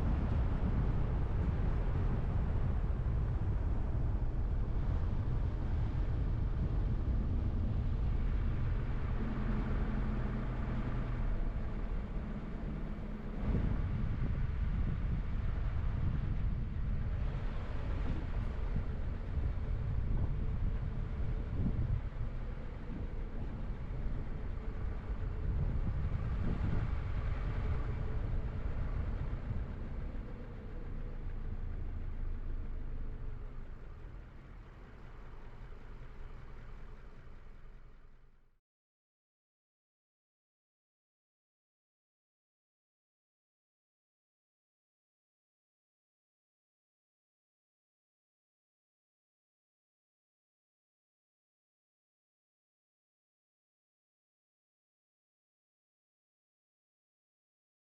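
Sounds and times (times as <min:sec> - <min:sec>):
car engine and tyre rumble: 0:00.0 - 0:38.6
engine hum: 0:00.0 - 0:38.6.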